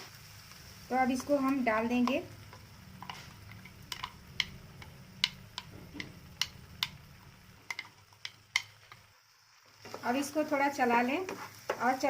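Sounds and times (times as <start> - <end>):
low steady hum: 0.2 - 9.2
sharp clicks and ticks: 2.0 - 9.0.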